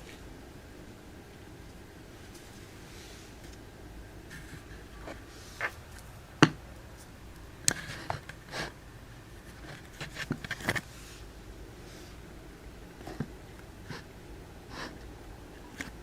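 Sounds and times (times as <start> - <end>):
small knocks clicks and scrapes: 7.7 - 8.8, 9.5 - 10.9.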